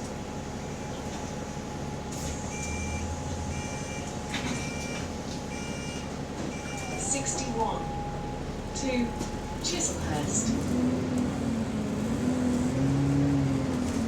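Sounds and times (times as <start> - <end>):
bus engine running: 0.0 - 14.0.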